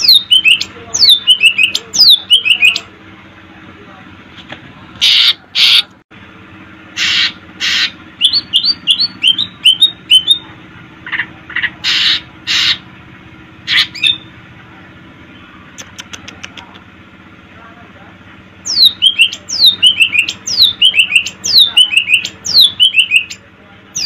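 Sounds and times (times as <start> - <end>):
harsh rasping bird calls: 0.0 - 2.9, 5.0 - 5.9, 6.9 - 13.0, 13.6 - 14.4, 18.6 - 24.0
songbird singing: 0.0 - 3.0, 7.0 - 12.9, 13.6 - 16.9, 18.6 - 24.0.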